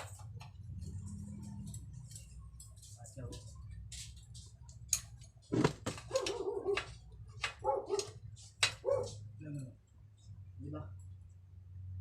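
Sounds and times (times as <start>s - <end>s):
dog barking and yipping: 6.0s - 7.0s, 7.6s - 9.2s.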